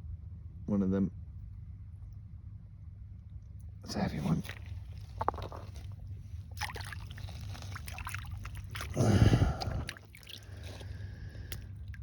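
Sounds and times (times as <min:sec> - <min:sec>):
water splashing and trickling: 0:04.0 - 0:12.0.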